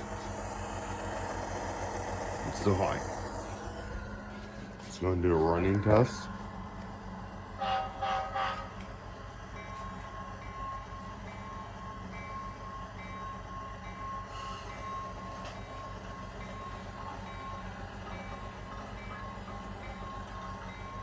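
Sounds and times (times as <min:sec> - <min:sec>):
model diesel engine hum: 0:00.0 - 0:14.2.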